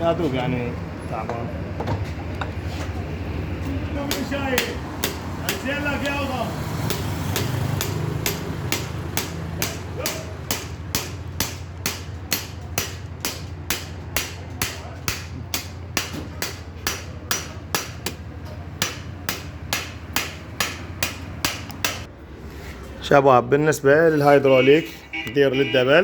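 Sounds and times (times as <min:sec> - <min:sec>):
hammer knocking on metal: 0:04.0 - 0:06.2, 0:06.9 - 0:22.1.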